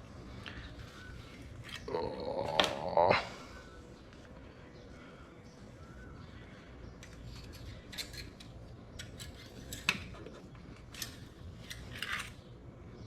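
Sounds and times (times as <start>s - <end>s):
dipstick metallic clicks and scrapes: 7.0s - 12.4s.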